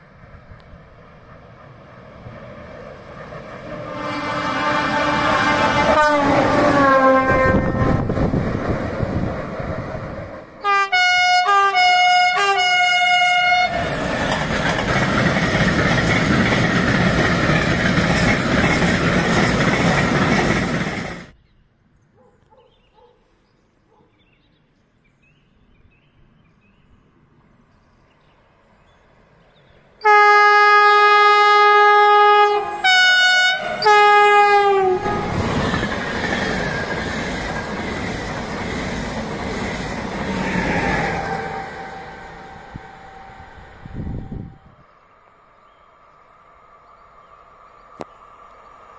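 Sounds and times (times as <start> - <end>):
train rolling by: 0.0 - 21.4, 28.6 - 48.9
train horn blasts: 3.7 - 8.2, 10.6 - 14.0, 30.0 - 35.5, 41.2 - 44.7.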